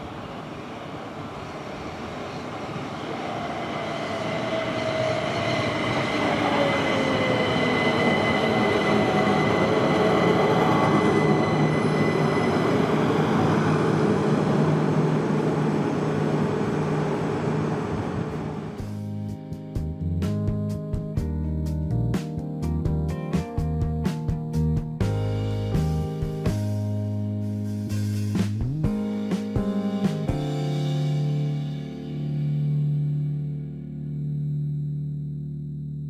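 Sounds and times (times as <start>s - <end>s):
train wheel rumble: 0.0s - 19.0s
electric train motor whine: 3.6s - 18.8s
thin high whine: 3.9s - 18.8s, 32.2s - 36.0s.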